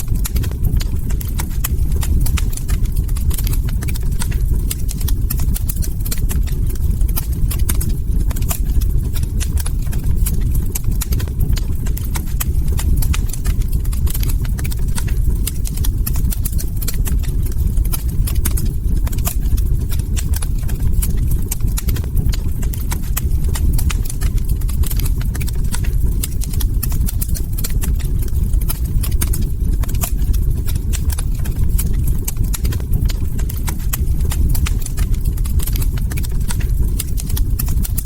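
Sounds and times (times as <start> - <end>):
log fire crackling: 0.0 - 38.0.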